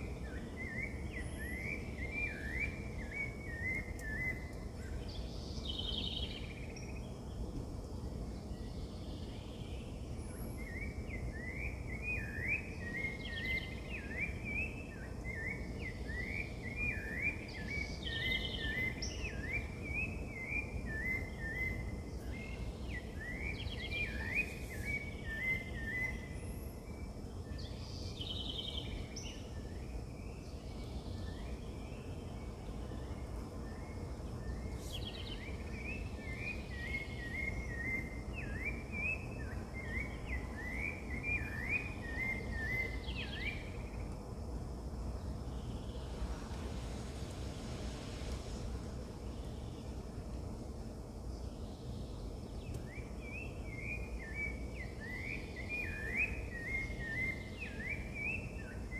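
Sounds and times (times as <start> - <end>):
birds singing whistled notes: 0.0 - 58.9
low background noise: 0.0 - 58.9.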